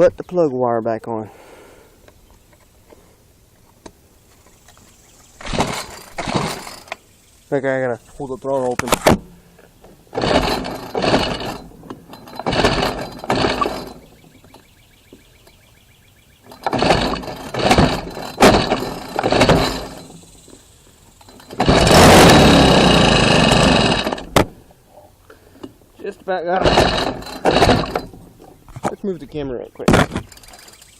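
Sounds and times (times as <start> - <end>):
recoil cord pulls cranking engine: 5.4 - 7.0, 9.9 - 14.7, 16.4 - 20.4, 21.2 - 24.5, 26.0 - 28.5, 30.0 - 30.9
string trimmer engine running: 5.4 - 7.0, 10.0 - 14.6, 16.5 - 20.3, 21.2 - 24.5, 26.5 - 28.3.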